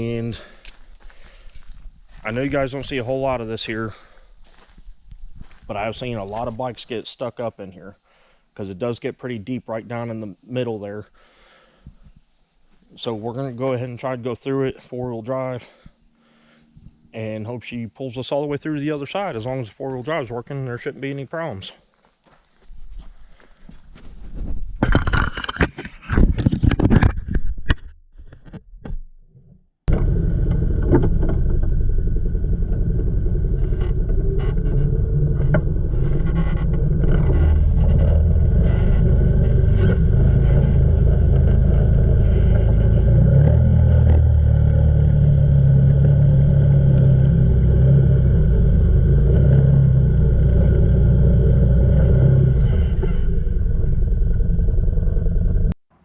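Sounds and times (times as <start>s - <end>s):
atv engine running under load: 29.9s - 55.8s.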